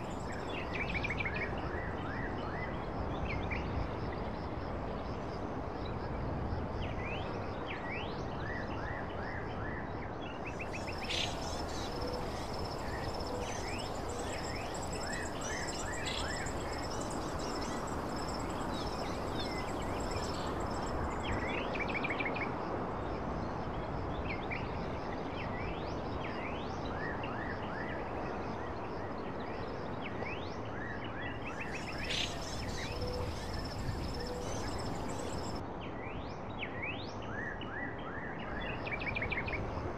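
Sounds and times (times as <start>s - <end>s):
bird chirps: 10.5s - 21.6s, 31.6s - 35.6s
steady rushing background noise: 10.5s - 21.6s, 31.6s - 35.6s.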